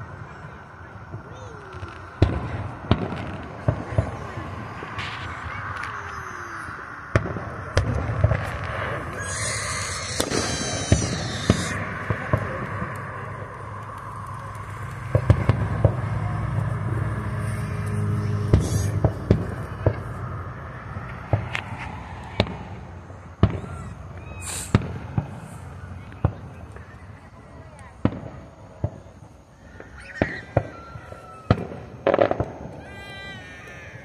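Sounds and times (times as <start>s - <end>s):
distant fireworks bangs: 0.0s - 34.0s
high crackling hiss: 0.0s - 34.0s
passing car rumble: 6.7s - 26.8s.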